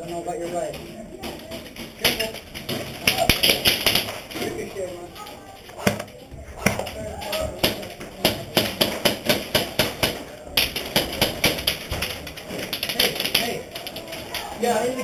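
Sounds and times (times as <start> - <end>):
airsoft guns firing: 2.0 - 4.3.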